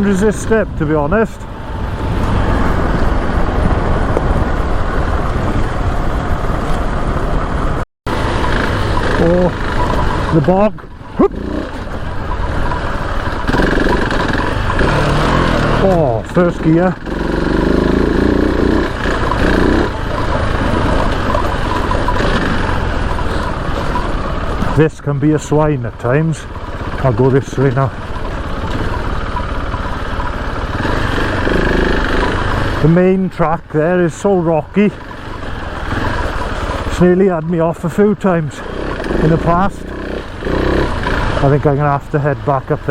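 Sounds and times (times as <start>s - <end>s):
motorcycle engine running: 0.0s - 42.9s
rough noisy sound: 0.0s - 42.9s
wind rush: 0.5s - 10.3s.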